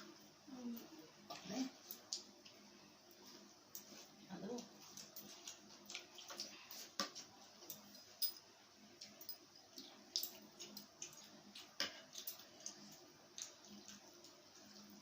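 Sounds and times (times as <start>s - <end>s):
chewing smacks: 4.9s - 7.0s, 9.0s - 15.0s.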